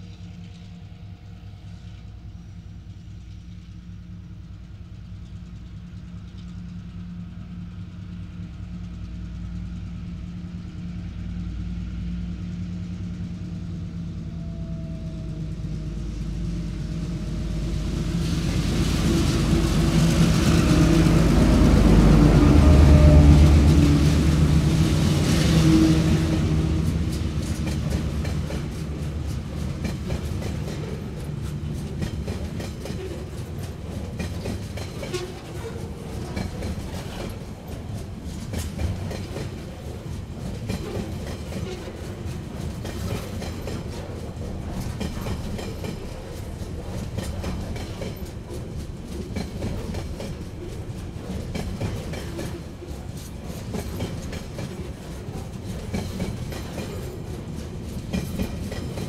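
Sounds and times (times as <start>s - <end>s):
train wheels rumbling on rails: 0.0s - 59.0s
wheels clicking over track: 26.7s - 59.0s.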